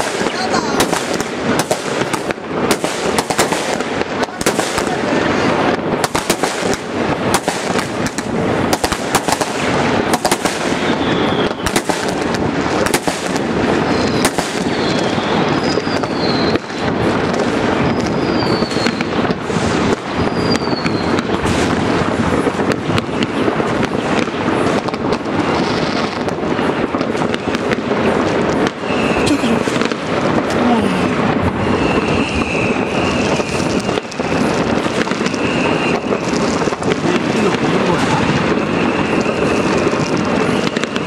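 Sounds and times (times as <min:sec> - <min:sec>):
descending firework whistles: 0:00.0 - 0:41.0
firecrackers crackling and banging: 0:00.0 - 0:41.0.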